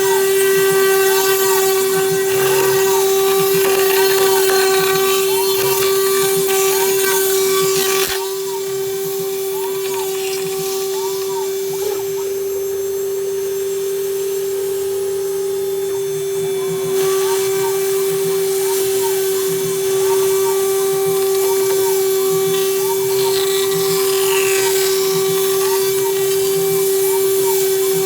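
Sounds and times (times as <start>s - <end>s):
end mill cutting plastic: 0.0s - 28.0s
router spindle running: 0.0s - 28.0s.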